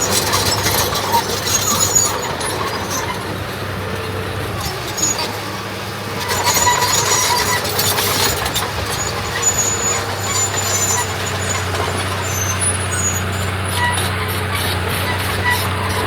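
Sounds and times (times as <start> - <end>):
heavy diesel machinery engine drone: 0.0 - 16.0
high-pitched squeaks: 6.2 - 16.0.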